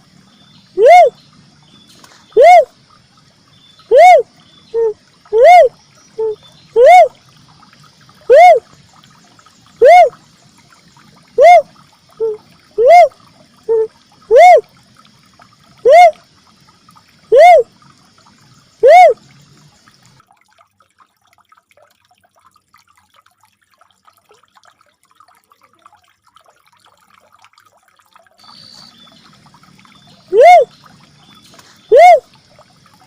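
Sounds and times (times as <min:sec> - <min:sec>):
dove call rising and falling: 0:02.4 - 0:02.7, 0:08.3 - 0:08.6, 0:11.4 - 0:11.6, 0:12.2 - 0:13.1, 0:17.3 - 0:17.7, 0:18.8 - 0:19.2, 0:30.3 - 0:30.7, 0:31.5 - 0:32.2
faint hiss: 0:28.4 - 0:33.0.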